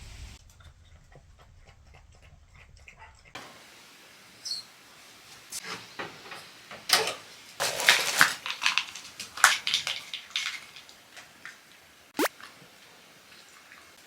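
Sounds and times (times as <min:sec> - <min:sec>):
objects clattering and knocking: 0:05.6 - 0:11.4.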